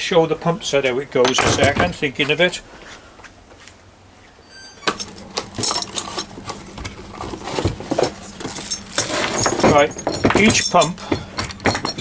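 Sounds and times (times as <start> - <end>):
faint steady hum: 0.0 - 12.0
metal fittings clicking and clinking: 7.6 - 12.0.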